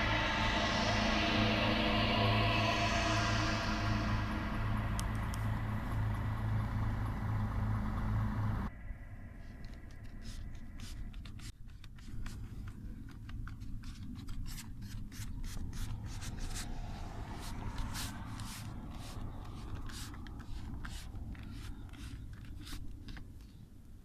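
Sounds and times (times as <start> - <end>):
steady low hum: 0.0 - 24.0
hands scraping plastic trim: 9.8 - 16.6, 17.8 - 23.7.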